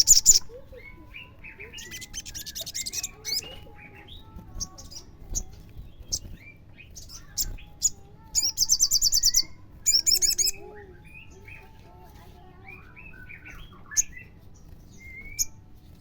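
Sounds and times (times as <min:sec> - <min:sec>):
bird song trills and whistles: 0:00.0 - 0:16.0.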